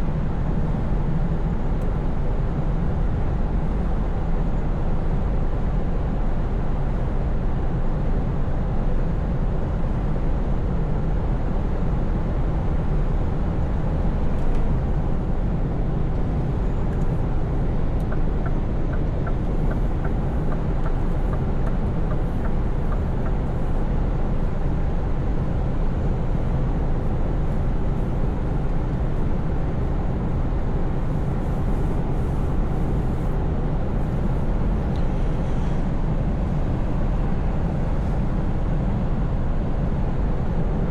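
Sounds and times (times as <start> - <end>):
truck engine droning: 13.1 - 38.3.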